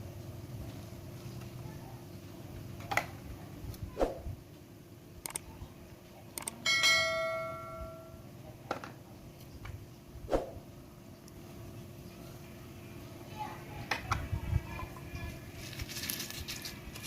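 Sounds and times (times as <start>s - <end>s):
metal cookware ringing: 6.6s - 8.2s.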